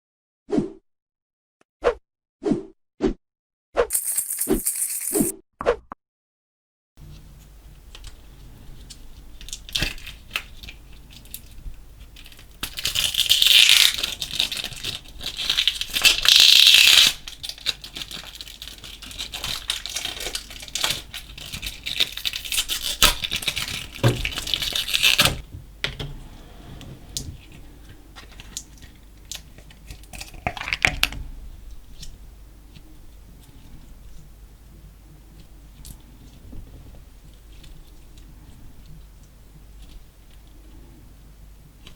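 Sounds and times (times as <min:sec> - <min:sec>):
slime crackling and popping: 0:09.4 - 0:25.4.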